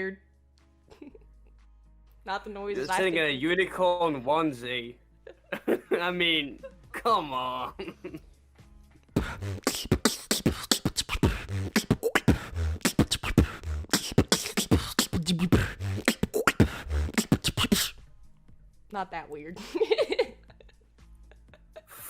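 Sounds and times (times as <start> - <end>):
human beatboxing: 9.2 - 18.0.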